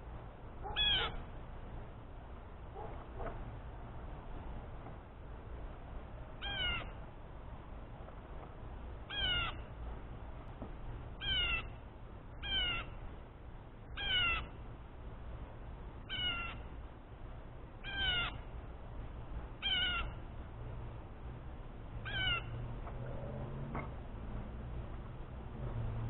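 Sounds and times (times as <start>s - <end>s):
meow-like animal calls: 0.6s - 1.2s, 6.4s - 6.9s, 9.1s - 9.6s, 12.4s - 12.9s, 14.0s - 14.5s, 16.1s - 16.6s, 17.8s - 18.4s, 19.6s - 20.2s, 22.0s - 22.5s.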